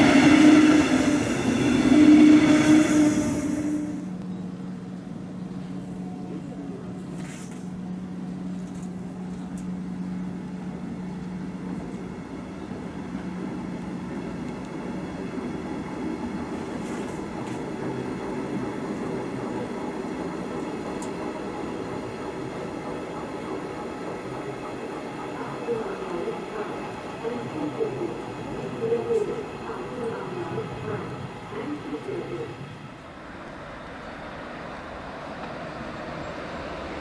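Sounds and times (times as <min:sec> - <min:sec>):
steady train hum: 0:00.0 - 0:37.0.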